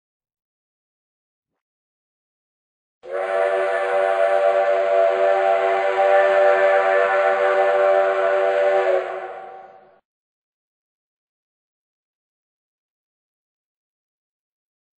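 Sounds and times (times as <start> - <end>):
steam train whistle chord: 3.0 - 10.0.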